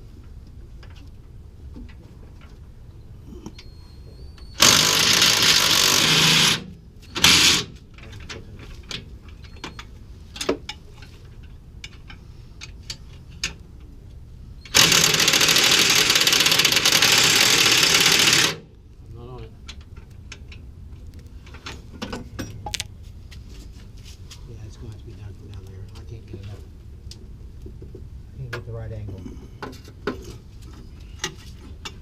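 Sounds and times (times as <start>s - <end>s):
impact wrench hammering: 4.6s - 7.7s, 14.7s - 18.6s.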